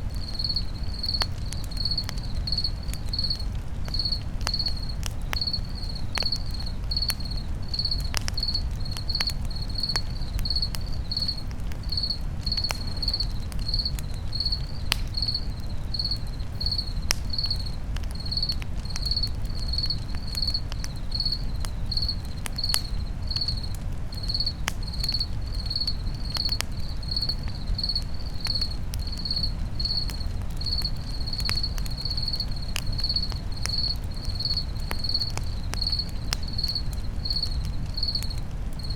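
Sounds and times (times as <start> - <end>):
campfire crackling and popping: 0.0 - 38.9
cricket chirping: 0.0 - 38.9.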